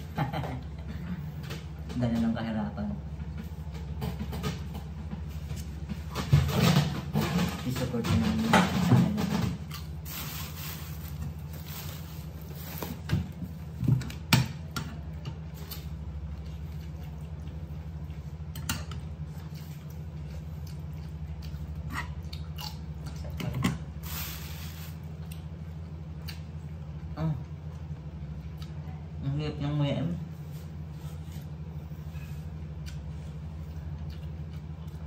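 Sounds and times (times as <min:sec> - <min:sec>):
steady low hum: 0:00.0 - 0:35.0
man chewing cucumber: 0:09.6 - 0:10.1, 0:10.9 - 0:29.2, 0:30.7 - 0:35.0.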